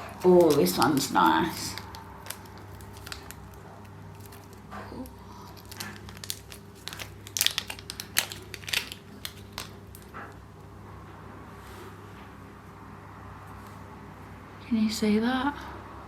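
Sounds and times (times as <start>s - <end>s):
packaging crinkling and rustling: 0.0s - 10.4s.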